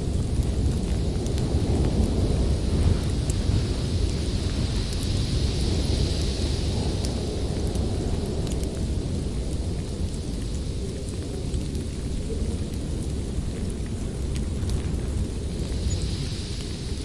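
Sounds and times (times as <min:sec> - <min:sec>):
low rumble of storm wind: 0:00.0 - 0:17.0
wood fire crackling: 0:00.0 - 0:17.0.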